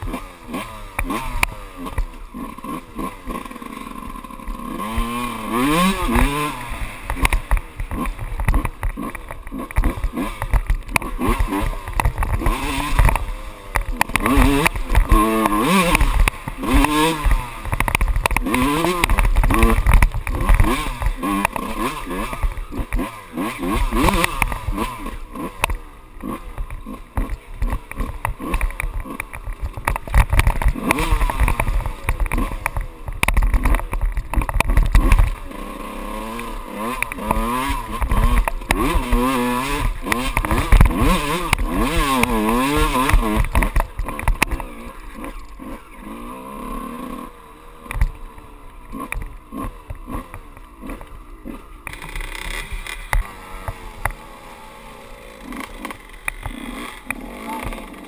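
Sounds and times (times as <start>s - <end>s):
dirt bike engine revving: 0.0s - 58.0s
knocks and thumps from terrain: 4.8s - 35.5s, 36.1s - 46.2s, 51.8s - 54.2s.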